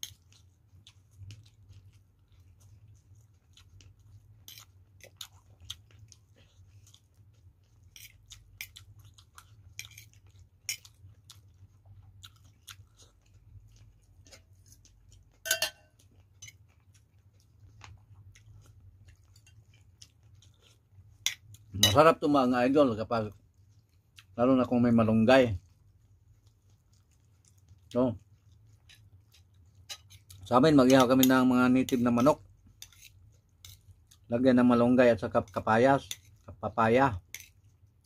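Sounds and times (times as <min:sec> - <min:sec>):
person chewing food: 0:00.0 - 0:38.0
clink: 0:15.5 - 0:15.9.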